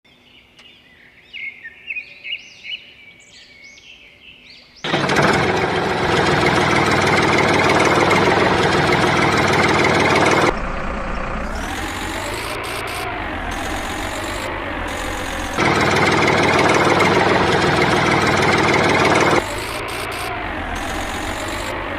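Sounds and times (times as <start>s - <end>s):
loud engine running: 4.9s - 21.9s.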